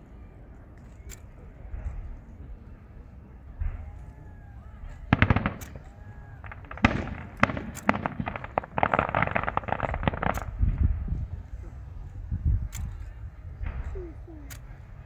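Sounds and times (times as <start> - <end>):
fireworks crackling: 4.8 - 12.3
firework shells bursting: 4.9 - 11.4.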